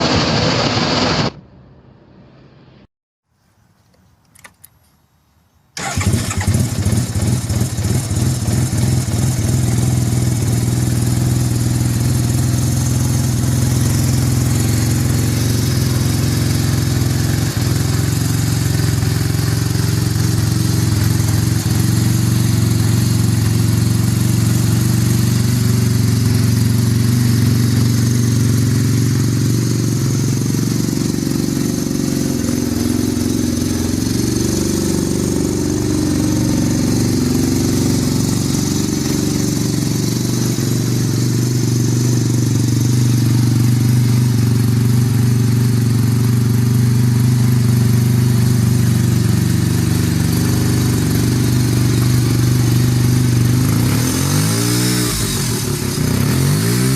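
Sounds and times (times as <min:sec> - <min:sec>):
rotary engine starting and idling: 0:05.8 - 0:46.7.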